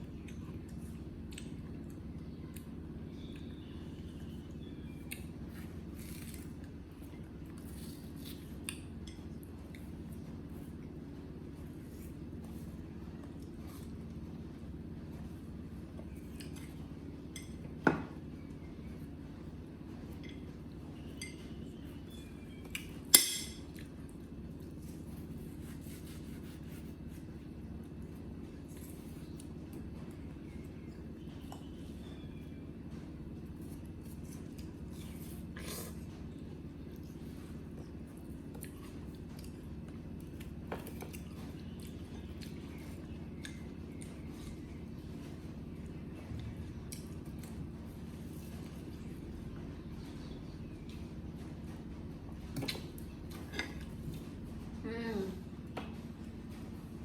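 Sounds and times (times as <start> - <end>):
steady low hum: 0.0 - 57.0
tableware clinking: 23.1 - 23.6.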